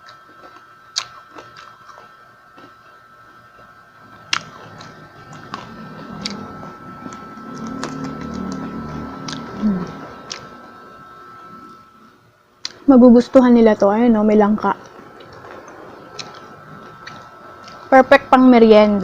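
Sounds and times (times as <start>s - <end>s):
muffled chewing: 14.8s - 17.9s.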